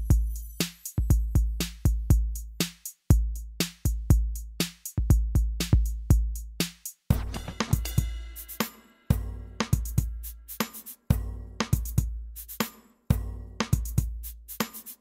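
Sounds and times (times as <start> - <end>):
drum machine beat: 0.0 - 15.0
deep bass line: 9.1 - 10.3, 11.1 - 12.4, 13.1 - 14.3.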